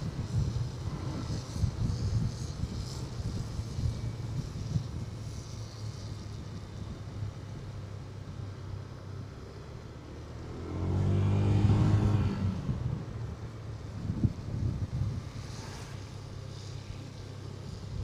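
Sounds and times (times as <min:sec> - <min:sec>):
wind on microphone: 0:00.0 - 0:08.0, 0:10.8 - 0:18.0
louder engine passing: 0:09.1 - 0:17.1.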